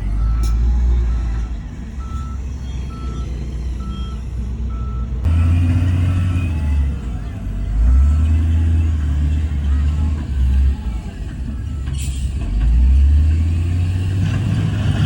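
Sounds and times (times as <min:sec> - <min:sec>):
diesel engine drone: 0:00.0 - 0:15.0
reversing alarm beeping: 0:00.1 - 0:07.1.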